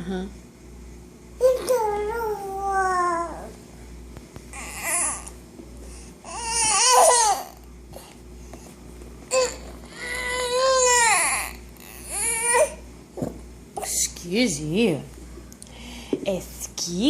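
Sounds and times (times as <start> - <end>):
baby crying high-pitched: 6.3 - 7.6, 9.3 - 12.8.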